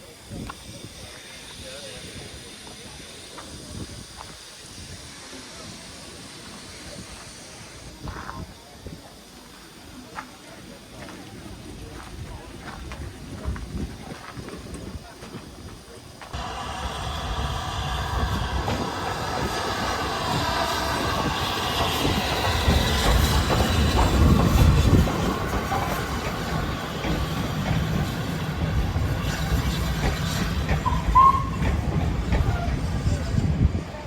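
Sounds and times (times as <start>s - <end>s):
train wheels rumbling on rails: 0.0s - 34.0s
high wheel squeal: 29.1s - 31.8s.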